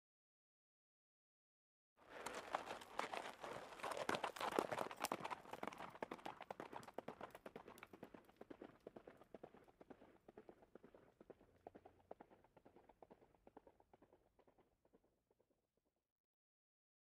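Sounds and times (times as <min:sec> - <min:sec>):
horse hooves clip-clopping: 0:02.1 - 0:15.2.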